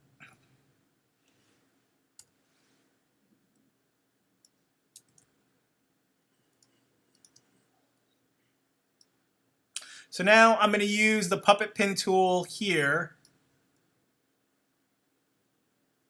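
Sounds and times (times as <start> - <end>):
computer mouse clicks: 2.2 - 2.4, 4.4 - 5.3, 6.5 - 8.2.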